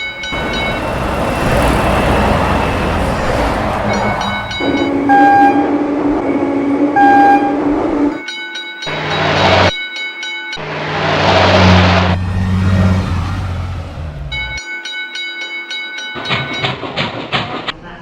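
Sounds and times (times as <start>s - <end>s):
train horn blowing: 5.1s - 5.9s, 6.9s - 7.9s.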